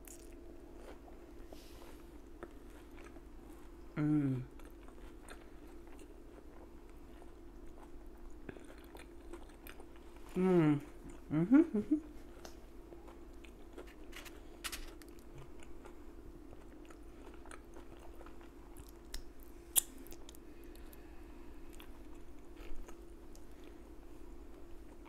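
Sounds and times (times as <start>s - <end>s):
person chewing food: 0.0s - 11.3s, 12.1s - 25.0s.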